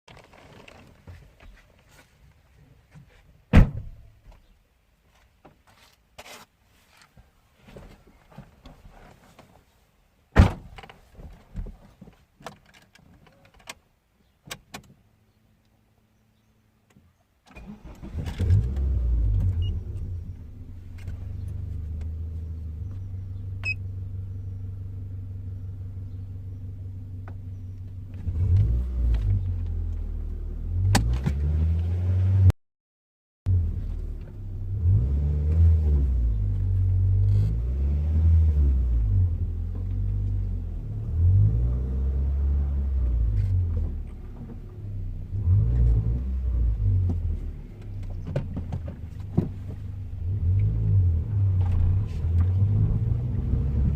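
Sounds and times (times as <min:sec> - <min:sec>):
car engine starting and idling: 0:17.5 - 0:32.5, 0:33.5 - 0:53.9
engine revving: 0:17.6 - 0:20.2, 0:28.1 - 0:30.0, 0:34.6 - 0:43.9, 0:45.3 - 0:47.4, 0:50.2 - 0:53.9.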